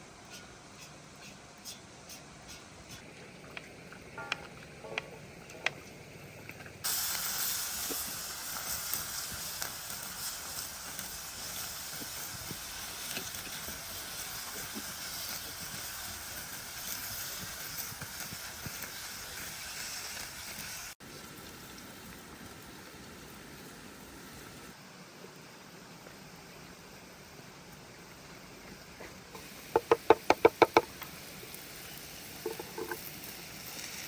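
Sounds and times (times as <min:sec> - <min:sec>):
food sizzling in a pan: 0:06.8 - 0:24.8, 0:28.8 - 0:34.0.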